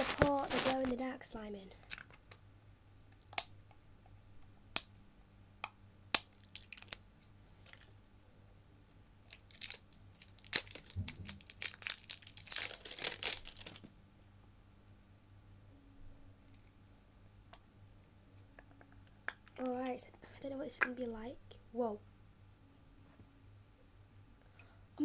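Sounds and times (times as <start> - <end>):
plastic crinkling and tearing: 0.0 - 1.0, 6.2 - 7.0, 9.3 - 13.9
plastic packaging clicks and crackles: 1.8 - 2.4, 6.2 - 7.0, 9.3 - 13.9.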